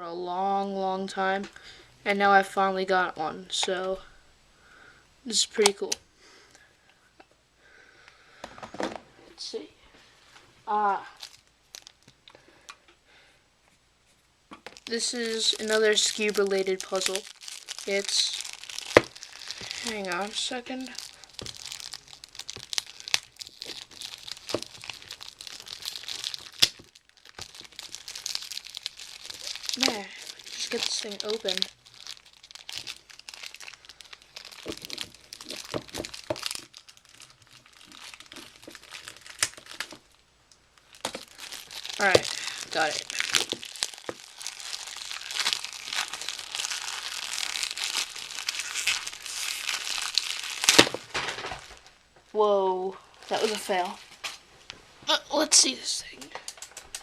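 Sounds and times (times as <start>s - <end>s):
packaging crinkling and tearing: 10.8s - 12.3s, 14.6s - 40.2s, 40.8s - 52.0s, 53.0s - 54.4s.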